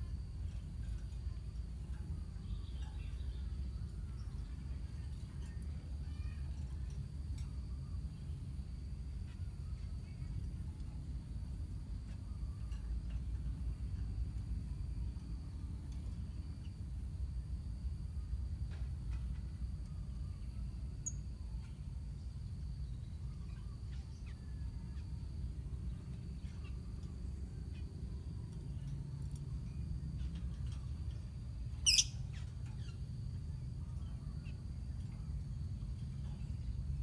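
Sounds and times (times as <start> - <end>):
lovebirds chirping: 31.8 - 32.5
shrill bird call: 31.9 - 32.4.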